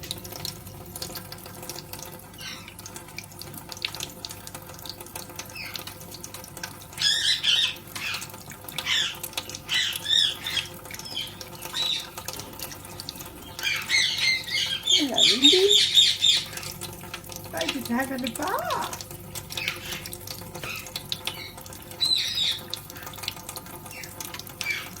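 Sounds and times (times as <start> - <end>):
water splashing: 0.0 - 25.0
parakeet squawking: 2.4 - 2.8, 7.0 - 12.2, 13.4 - 16.7, 20.6 - 22.7.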